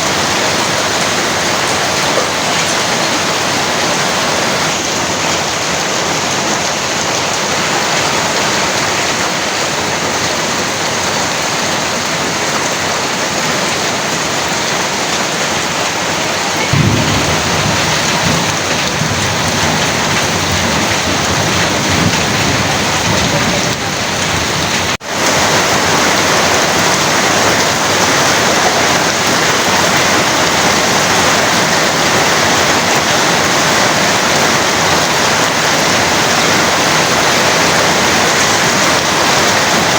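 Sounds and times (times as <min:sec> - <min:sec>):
heavy rain pouring: 0:00.0 - 0:39.9
thunder rumble: 0:16.4 - 0:39.9.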